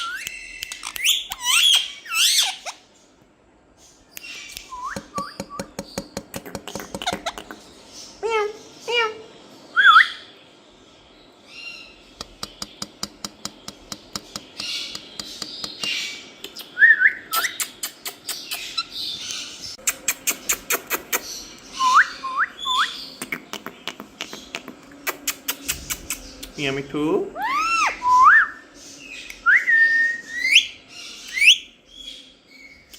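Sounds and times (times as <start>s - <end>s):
parrot whistling and squawking: 0.0s - 2.8s, 9.7s - 10.3s, 27.4s - 28.6s, 29.5s - 31.7s.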